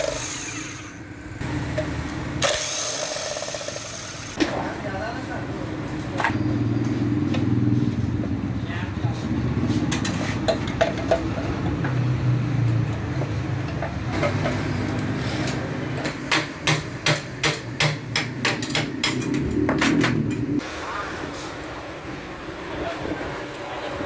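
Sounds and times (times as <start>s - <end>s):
hammer strikes: 16.0s - 20.5s.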